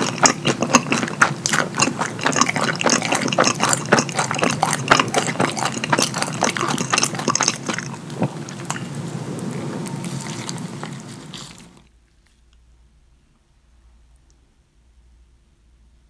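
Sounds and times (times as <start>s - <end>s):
wet chewing and lip-smacking: 0.0s - 12.6s.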